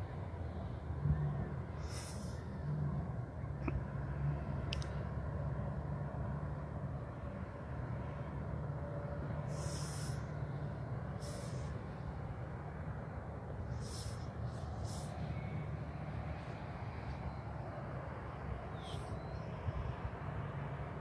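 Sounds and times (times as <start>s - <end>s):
low outdoor rumble: 0.0s - 21.0s
high hissing bursts: 1.8s - 2.5s, 9.5s - 10.4s, 11.2s - 12.0s, 13.7s - 15.3s.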